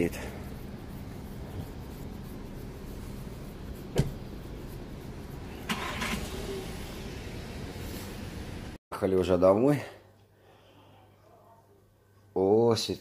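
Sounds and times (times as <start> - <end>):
car engine rumbling: 0.0 - 8.8.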